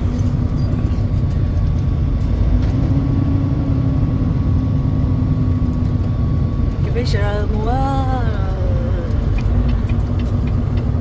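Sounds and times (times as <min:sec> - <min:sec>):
truck engine and road rumble: 0:00.0 - 0:11.0
faint constant hum: 0:03.6 - 0:11.0.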